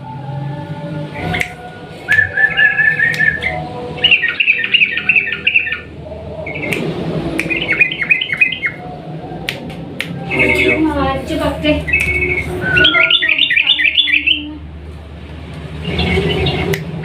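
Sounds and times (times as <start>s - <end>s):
bird chattering song: 2.2s - 6.8s, 7.4s - 8.8s, 10.3s - 10.9s, 11.8s - 14.5s.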